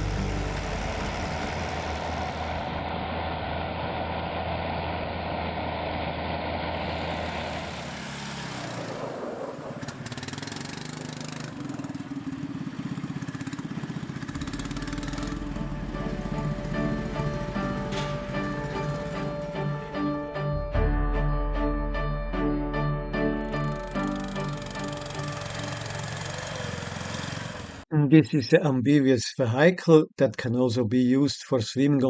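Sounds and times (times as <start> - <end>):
vehicle engine running: 0.0 - 20.6, 23.3 - 27.8.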